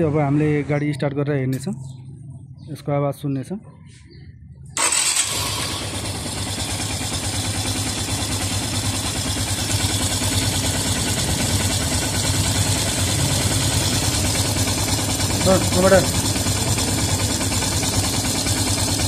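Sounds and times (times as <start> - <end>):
motorcycle engine idling: 4.8 - 19.0.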